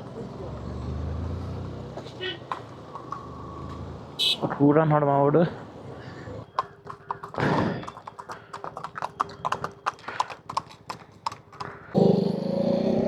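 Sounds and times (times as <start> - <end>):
loud vehicle engine: 0.0 - 4.2
horse hooves clip-clopping: 6.5 - 12.0.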